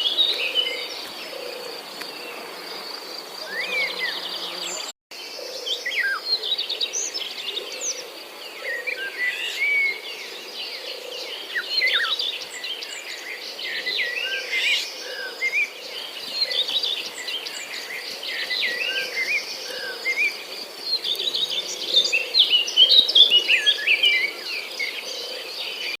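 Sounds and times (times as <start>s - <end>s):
high insect buzz: 0.0s - 4.9s.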